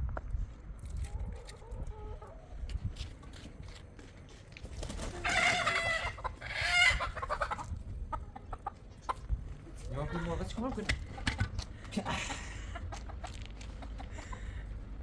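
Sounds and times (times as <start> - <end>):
chicken calling: 5.0 - 11.4.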